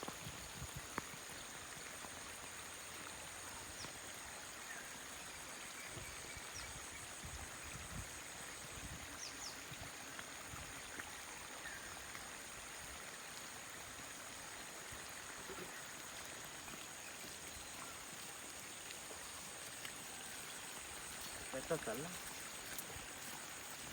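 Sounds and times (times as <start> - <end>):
water running: 12.8 - 23.9.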